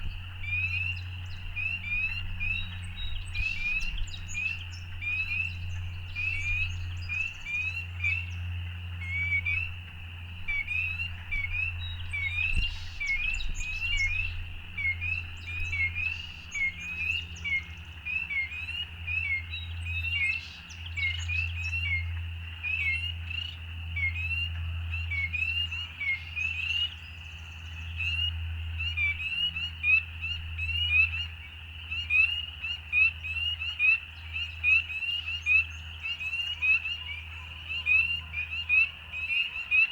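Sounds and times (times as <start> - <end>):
steady low rumble: 0.0 - 20.0
frogs peeping: 0.0 - 39.9.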